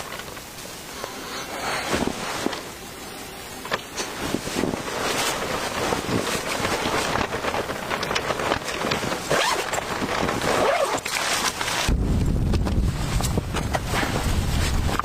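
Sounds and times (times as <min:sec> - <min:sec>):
wind buffeting microphone: 0:01.8 - 0:15.0
scratchy handling noise: 0:03.6 - 0:15.0.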